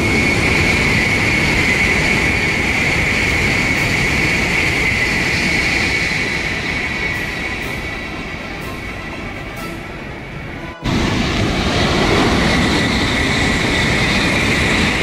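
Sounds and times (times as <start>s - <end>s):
high-speed train roaring past: 0.0s - 15.0s.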